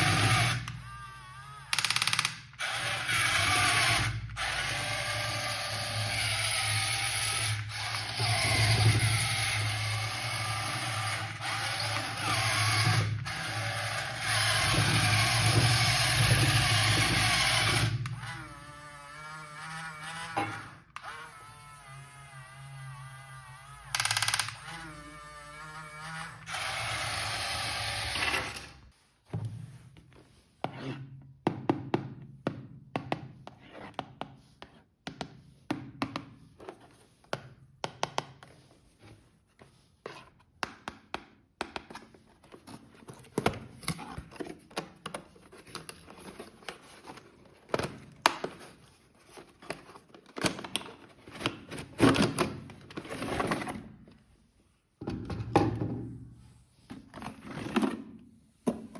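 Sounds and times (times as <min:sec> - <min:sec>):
plastic toy parts clicking: 0:01.7 - 0:02.6, 0:23.9 - 0:24.7.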